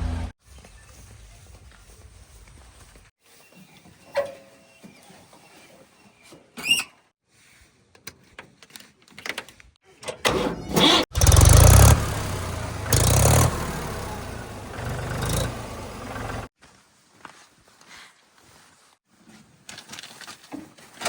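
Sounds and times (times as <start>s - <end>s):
engine revving: 0.0s - 0.4s, 10.8s - 16.5s
engine cranking and starting: 10.2s - 16.5s.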